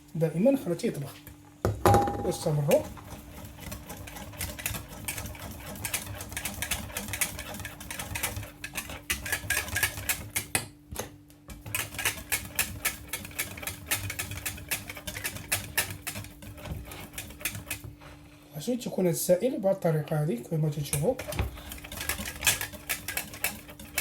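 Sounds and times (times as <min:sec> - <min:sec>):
utensil scraping saucepan: 0:02.1 - 0:10.4, 0:11.6 - 0:18.2, 0:19.8 - 0:24.0.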